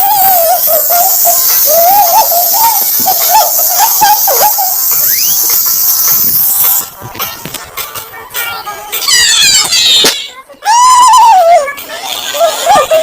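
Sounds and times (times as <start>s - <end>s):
high-pitched warbling squeal: 0.0s - 6.8s
loud steady hiss: 0.0s - 7.0s.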